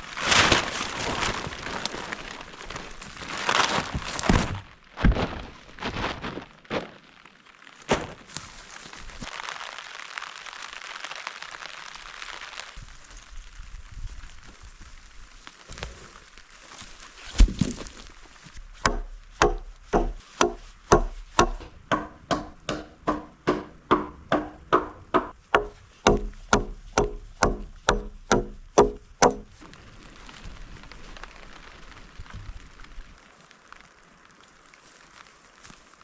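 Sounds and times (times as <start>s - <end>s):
hand tool striking wood: 18.6s - 29.6s
heavy thump: 18.7s - 29.6s.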